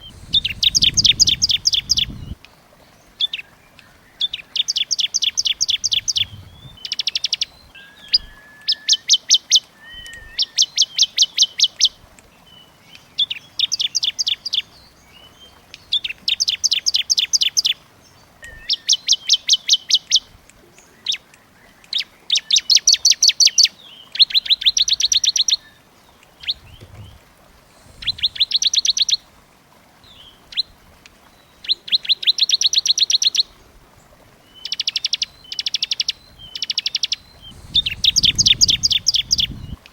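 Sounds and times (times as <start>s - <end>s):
songbird trilling: 0.0s - 2.4s, 4.2s - 11.9s, 18.4s - 20.2s, 27.8s - 29.2s, 34.5s - 39.8s.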